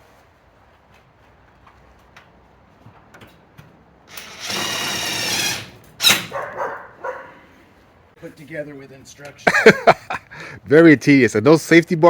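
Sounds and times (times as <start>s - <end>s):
cordless drill driving screw: 4.1s - 6.4s.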